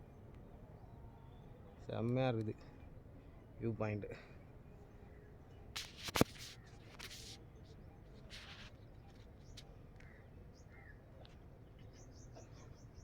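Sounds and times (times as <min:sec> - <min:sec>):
faint bird chirps: 0:00.0 - 0:03.5, 0:06.5 - 0:13.0
brief rustles: 0:05.7 - 0:09.7.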